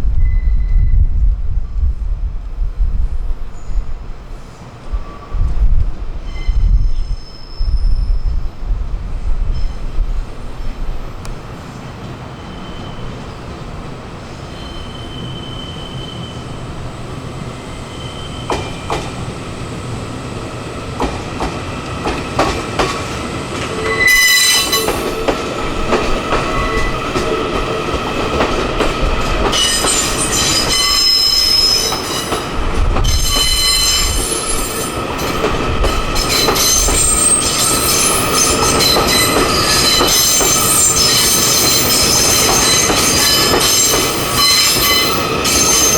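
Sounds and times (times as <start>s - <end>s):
train wheels rumbling on rails: 0.0s - 45.9s
wheel flanges squealing: 14.6s - 16.6s, 36.0s - 45.9s.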